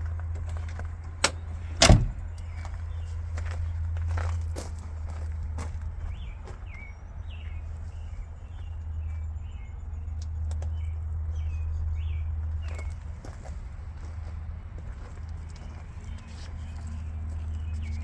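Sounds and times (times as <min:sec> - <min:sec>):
diesel engine idling: 0:00.0 - 0:18.0
birds chirping: 0:00.6 - 0:04.2, 0:06.0 - 0:13.0.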